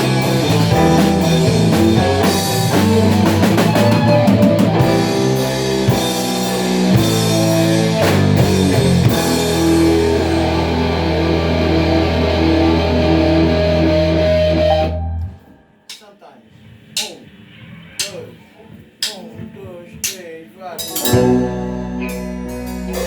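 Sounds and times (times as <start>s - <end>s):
drum kit: 0.0s - 14.9s, 15.9s - 23.0s
bass guitar: 0.0s - 15.5s, 20.8s - 23.0s
distorted guitar: 0.0s - 16.0s, 20.8s - 23.0s.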